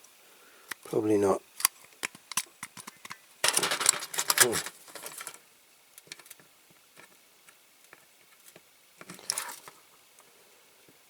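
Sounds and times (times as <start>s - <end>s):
small parts taps and ticks: 1.6s - 5.4s, 6.0s - 9.4s.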